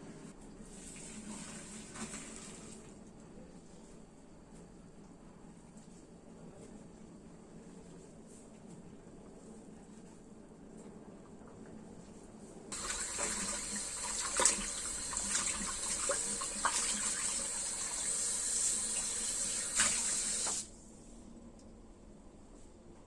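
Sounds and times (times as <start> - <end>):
tap water running into sink: 12.7 - 20.7.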